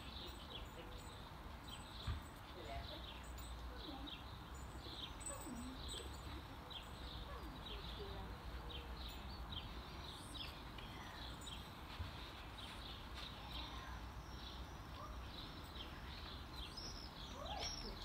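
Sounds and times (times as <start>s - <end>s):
bird chirping: 0.0s - 18.0s.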